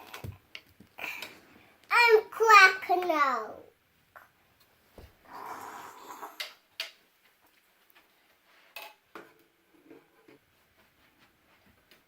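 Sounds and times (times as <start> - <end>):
soft rustle: 7.0 - 8.8.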